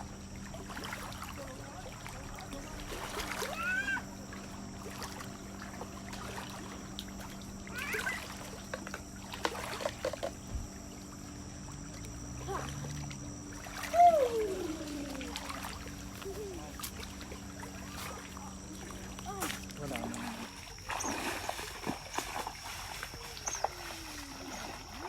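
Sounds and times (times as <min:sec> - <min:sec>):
steady hum: 0:00.0 - 0:25.0
water splashing: 0:00.0 - 0:25.0
faint voices: 0:13.8 - 0:20.9.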